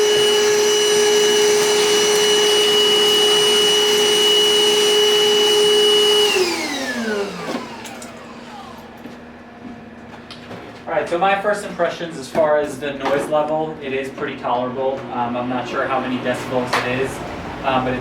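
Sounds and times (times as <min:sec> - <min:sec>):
vacuum motor whining: 0:00.0 - 0:10.9.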